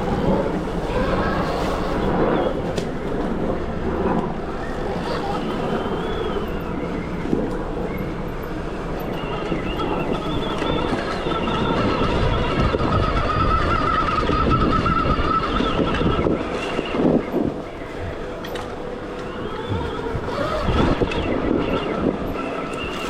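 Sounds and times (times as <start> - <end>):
rumble and rattle over rough ground: 0.0 - 23.0
electric motor whining: 19.2 - 21.3.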